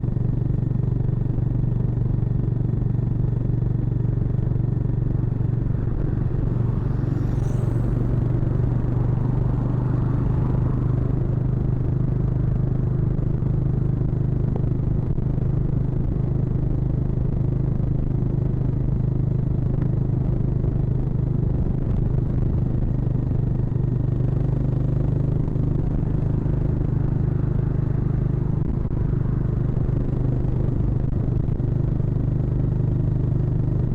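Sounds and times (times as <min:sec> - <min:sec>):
motorcycle engine cruising: 0:00.0 - 0:17.6.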